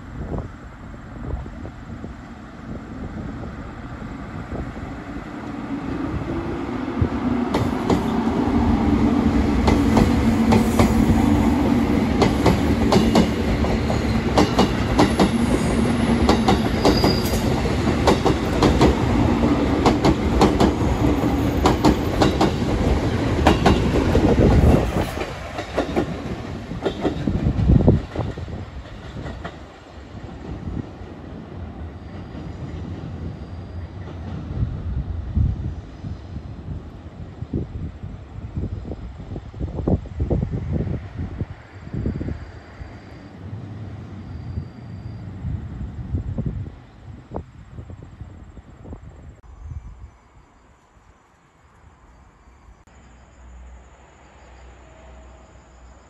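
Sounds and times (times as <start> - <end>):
train electric hum: 0.0 - 56.0
wheels clickety-clack over rail joints: 7.4 - 8.4, 9.4 - 34.8.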